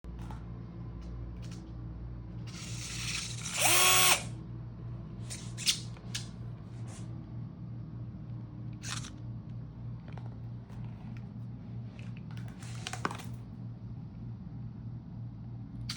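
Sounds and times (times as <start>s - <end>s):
steady low hum: 0.0s - 15.9s
power drill whining: 2.5s - 4.3s.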